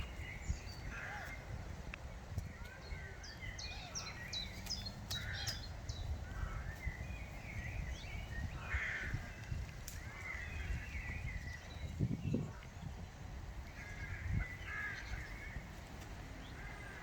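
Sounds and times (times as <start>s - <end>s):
birds chirping: 0.0s - 17.0s
harsh bird calls: 2.6s - 12.7s.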